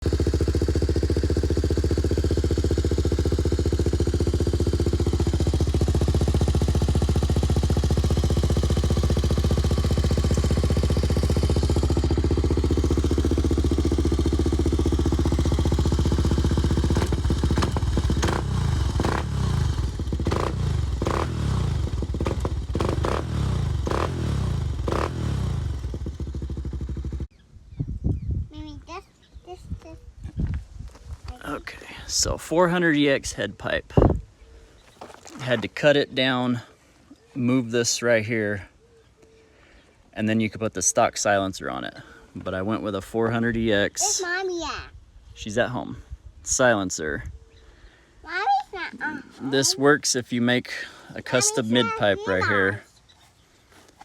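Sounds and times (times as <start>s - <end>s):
motorcycle engine idling and revving: 0.0s - 27.4s, 34.8s - 35.8s, 38.3s - 44.4s, 45.8s - 54.0s.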